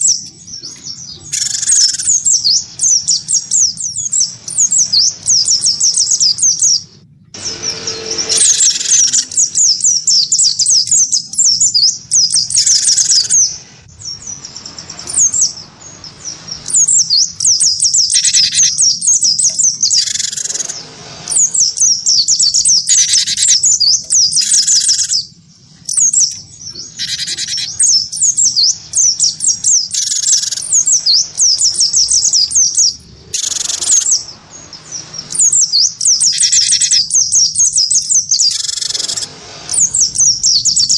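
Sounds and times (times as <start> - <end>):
birds twittering: 0.0 - 40.9
harsh low bird notes: 0.0 - 40.9.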